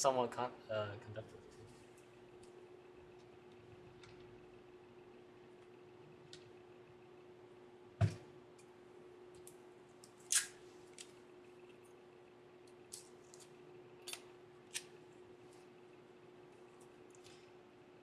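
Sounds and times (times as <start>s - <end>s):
faint steady hum: 0.0s - 18.0s
soft thump on desk: 8.0s - 8.2s.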